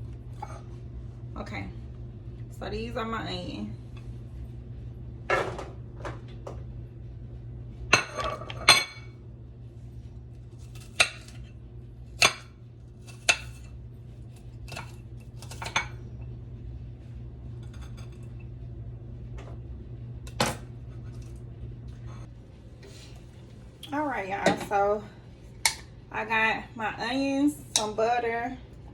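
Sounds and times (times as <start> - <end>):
steady low hum: 0.0 - 28.9
dishes and utensils clinking: 7.9 - 9.1.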